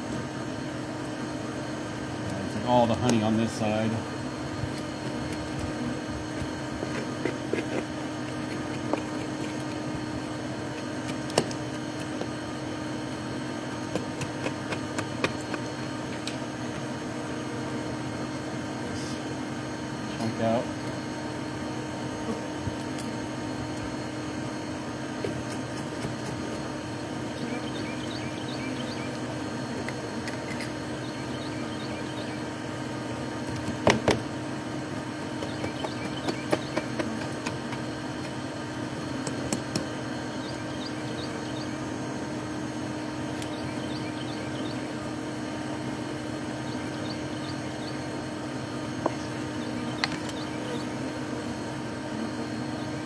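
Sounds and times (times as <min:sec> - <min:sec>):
honeybees buzzing: 0:00.0 - 0:53.0
clicks and knocks of honeycomb: 0:04.6 - 0:16.9, 0:25.1 - 0:26.7, 0:33.4 - 0:34.4, 0:35.3 - 0:38.4, 0:39.0 - 0:40.6.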